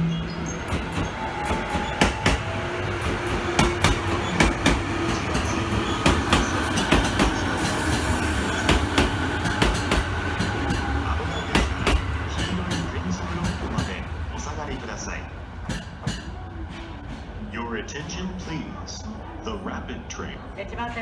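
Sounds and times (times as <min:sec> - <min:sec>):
train rumbling on rails: 0:00.0 - 0:21.0
wheel clacks over track: 0:00.7 - 0:14.0.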